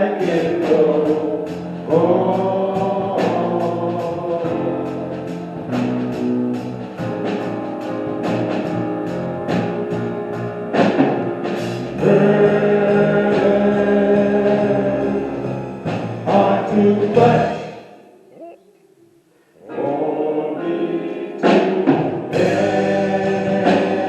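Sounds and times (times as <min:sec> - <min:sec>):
live gospel song with band: 0:00.0 - 0:17.8, 0:19.6 - 0:24.0.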